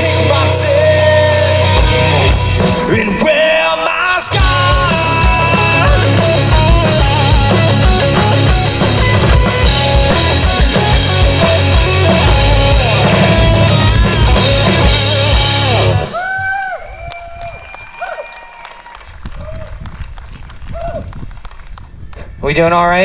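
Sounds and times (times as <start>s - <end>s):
rock band playing: 0.0s - 16.2s
drum kit beat: 4.4s - 16.1s.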